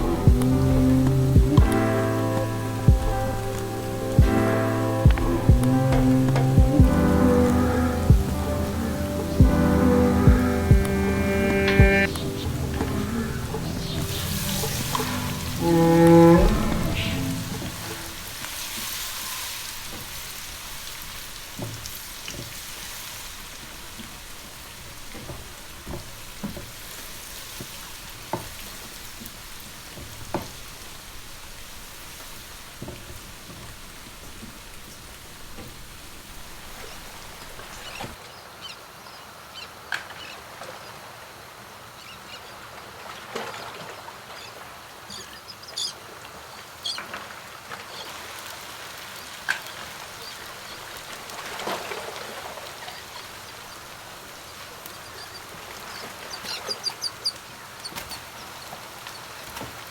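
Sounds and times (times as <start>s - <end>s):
food sizzling in hot oil: 17.8s - 23.3s.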